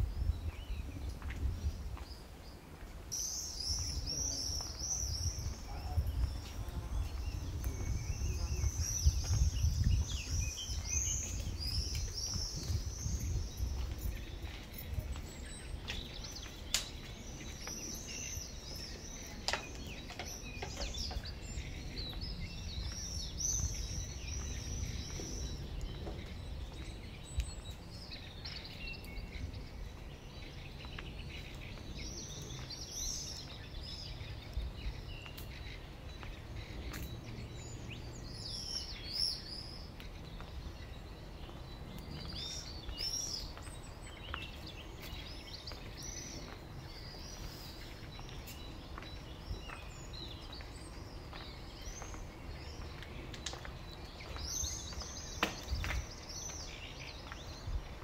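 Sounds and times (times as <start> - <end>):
small birds chirping: 0.0 - 58.0
steady low rumble: 3.6 - 19.2.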